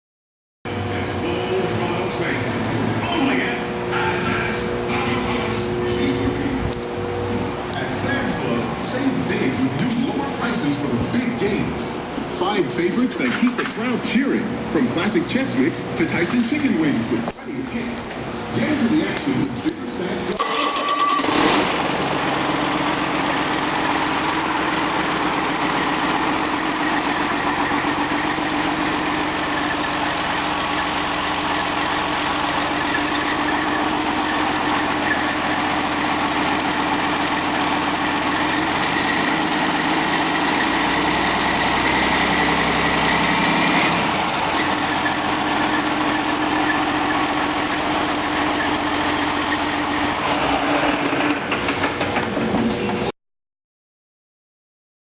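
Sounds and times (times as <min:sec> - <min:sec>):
diesel engine idling: 0:20.4 - 0:52.1.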